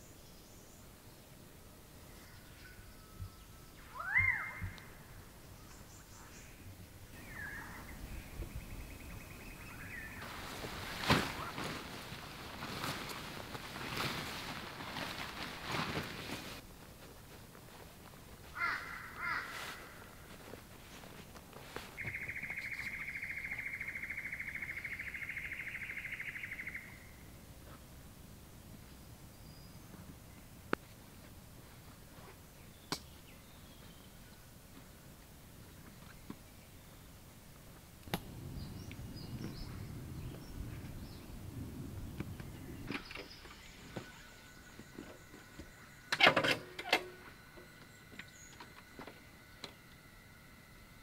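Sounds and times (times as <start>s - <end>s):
faint bird calls: 2.0s - 13.1s, 18.5s - 27.8s
bird trilling: 3.8s - 5.0s, 22.0s - 27.1s.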